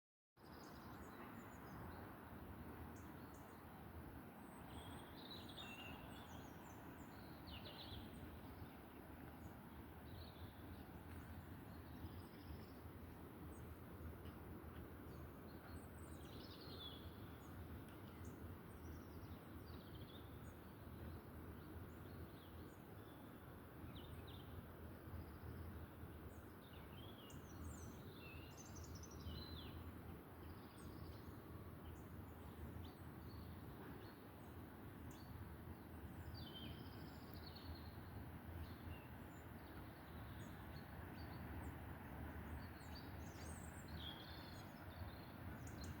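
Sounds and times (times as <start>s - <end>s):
small birds chirping: 25.2s - 41.8s, 42.4s - 46.0s.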